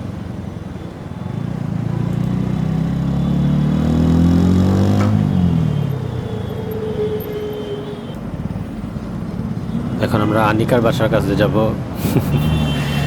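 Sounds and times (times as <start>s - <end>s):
motorcycle engine revving: 1.3s - 8.5s.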